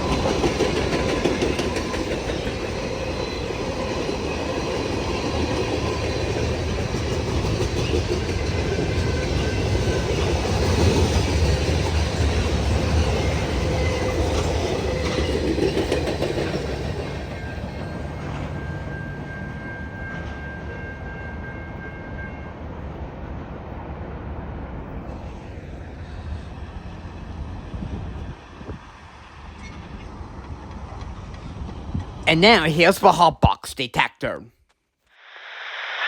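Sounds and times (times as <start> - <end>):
freight train wheels clicking: 0.0 - 18.5.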